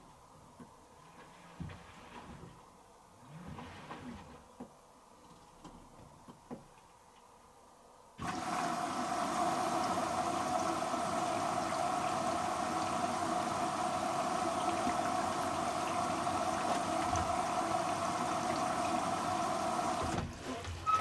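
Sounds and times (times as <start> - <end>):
water rushing into washing machine: 8.2 - 21.0.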